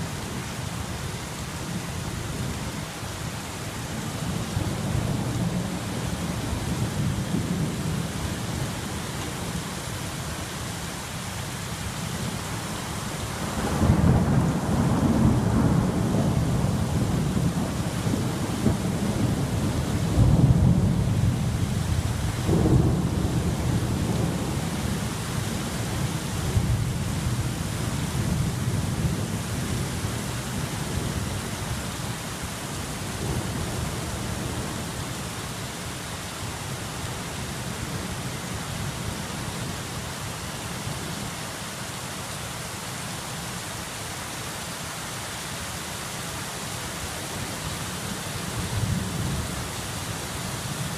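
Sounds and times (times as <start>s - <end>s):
steady rain: 0.0s - 50.9s
thunder rumbling: 13.5s - 29.9s.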